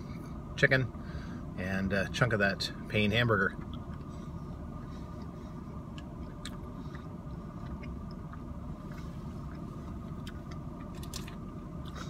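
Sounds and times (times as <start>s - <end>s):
car cabin hum: 0.0s - 12.0s
person chewing food: 3.6s - 12.0s.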